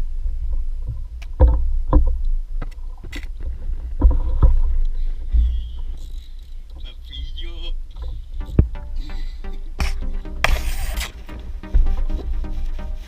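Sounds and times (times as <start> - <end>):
steady low rumble: 0.0 - 13.0
knocks and splashes on kayak hull: 0.8 - 5.9.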